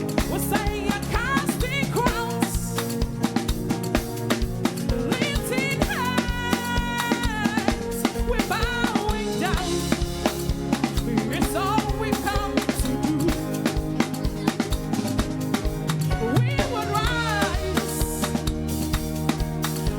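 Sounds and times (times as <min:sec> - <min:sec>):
drum kit beat: 0:00.0 - 0:19.9
sliding lead melody: 0:00.0 - 0:19.9
worship band playing: 0:00.0 - 0:19.9.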